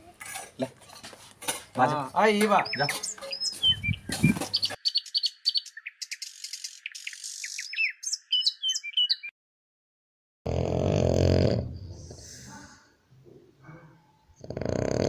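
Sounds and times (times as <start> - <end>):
small birds chirping: 1.9 - 9.3.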